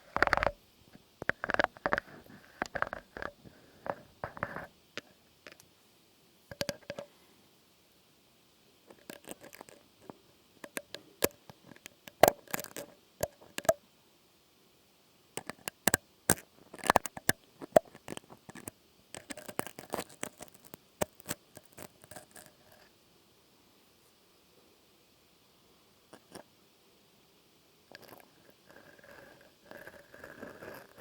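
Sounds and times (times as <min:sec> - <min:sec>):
taps clicks and scratches on object: 0:00.1 - 0:00.6, 0:01.2 - 0:05.7, 0:06.5 - 0:07.1, 0:08.9 - 0:13.8, 0:15.4 - 0:22.9, 0:27.9 - 0:31.0.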